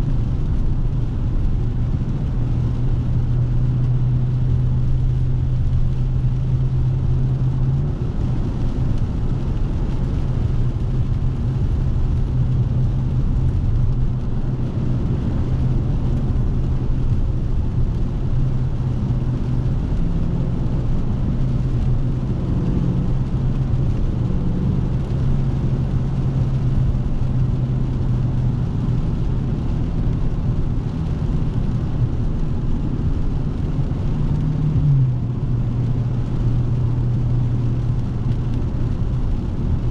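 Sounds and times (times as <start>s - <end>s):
car engine droning: 0.0s - 39.9s
tyre and road noise: 0.0s - 39.9s.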